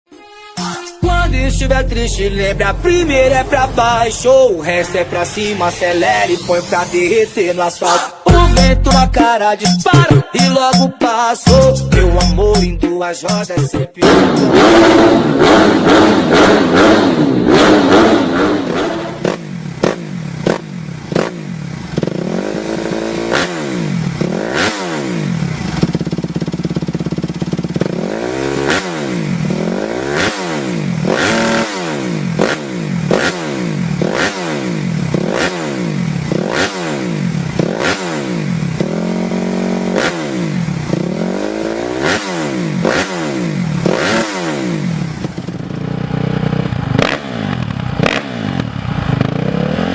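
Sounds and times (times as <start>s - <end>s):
music: 0.1s - 14.8s
motorcycle engine revving: 1.0s - 7.2s, 14.0s - 49.9s.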